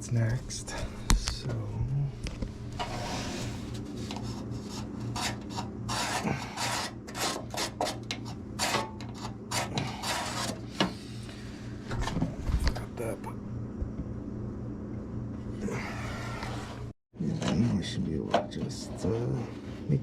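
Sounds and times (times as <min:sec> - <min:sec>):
steady low hum: 0:00.0 - 0:20.0
hand tool rasping sheet steel: 0:05.1 - 0:10.6.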